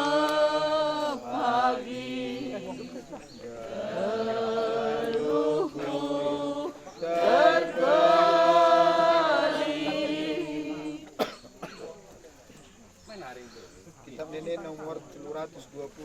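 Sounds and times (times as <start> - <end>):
voices singing chant-like notes: 0.0 - 11.4.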